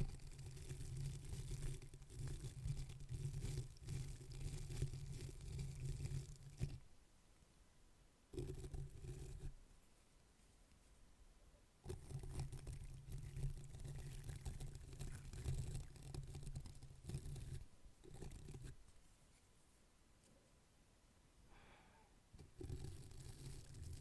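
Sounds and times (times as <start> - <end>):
scratchy brushing close to microphone: 0.0 - 6.8, 11.9 - 20.5, 22.5 - 24.0.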